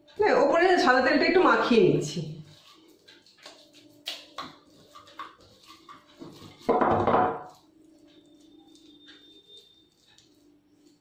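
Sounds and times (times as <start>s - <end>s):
sticky dough clicks and taps: 3.0s - 8.1s.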